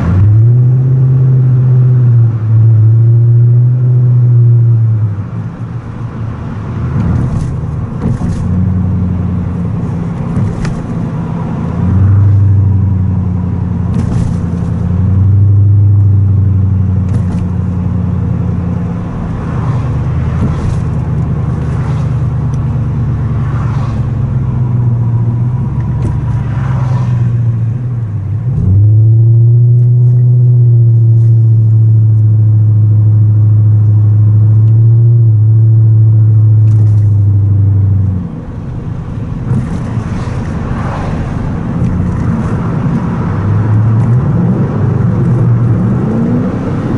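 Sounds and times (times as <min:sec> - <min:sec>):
car engine deep drone: 0:00.0 - 0:46.9.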